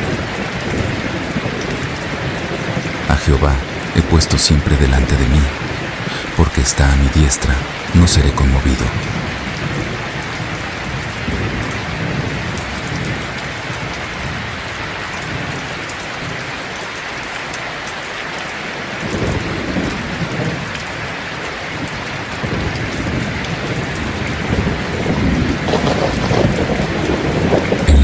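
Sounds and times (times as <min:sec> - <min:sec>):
heavy rain falling: 0:00.0 - 0:28.0
low rolling thunder: 0:09.0 - 0:15.7, 0:19.0 - 0:21.1, 0:21.8 - 0:28.0.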